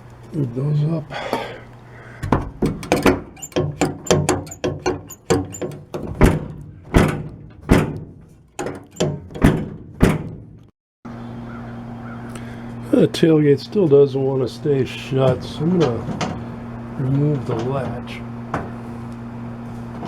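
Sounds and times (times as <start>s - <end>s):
tailgate clunks and knocks: 2.2s - 10.7s.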